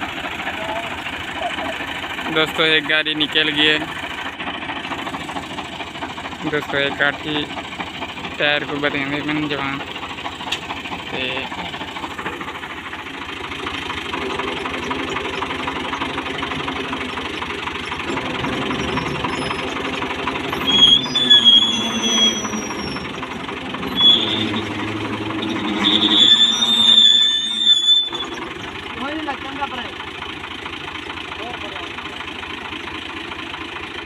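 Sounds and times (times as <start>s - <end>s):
tractor engine knocking under load: 0.0s - 34.0s
high-pitched squeals: 17.6s - 28.8s.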